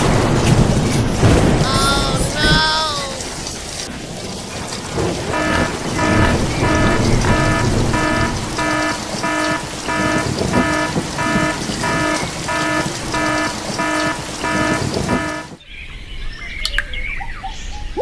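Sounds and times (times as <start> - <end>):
low rumble: 3.2 - 15.3.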